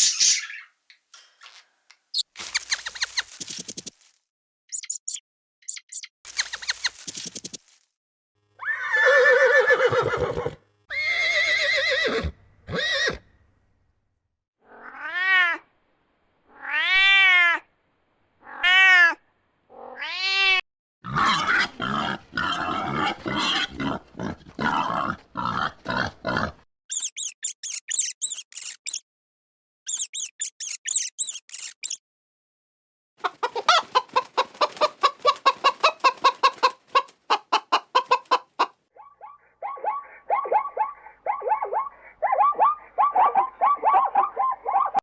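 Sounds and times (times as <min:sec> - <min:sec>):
animal calls: 0:33.2 - 0:45.0.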